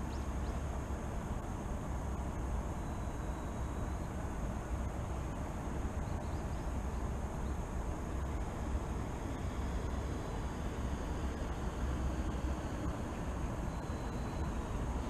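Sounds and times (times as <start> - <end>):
distant traffic rumble: 0.0 - 15.0.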